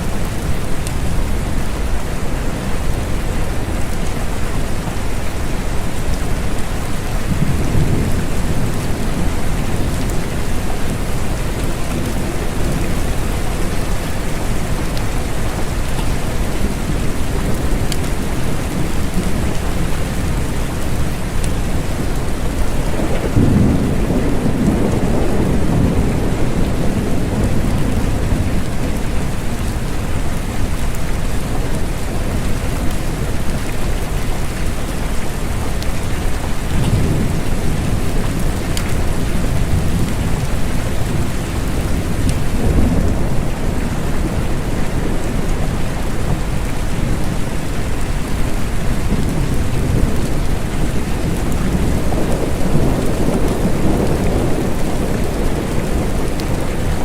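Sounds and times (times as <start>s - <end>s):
steady rain falling: 0.0s - 57.0s
low rolling thunder: 7.2s - 29.8s, 36.7s - 48.0s, 48.6s - 57.0s.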